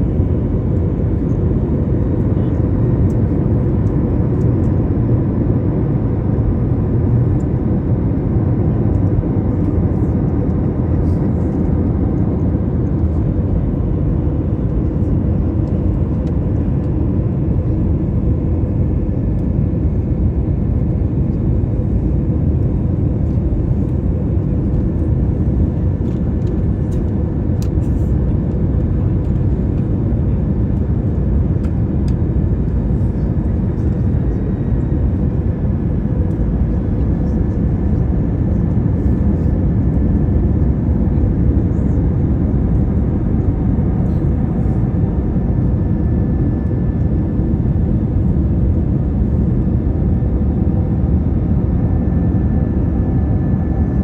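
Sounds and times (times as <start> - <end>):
airliner engines rumbling: 0.0 - 54.0.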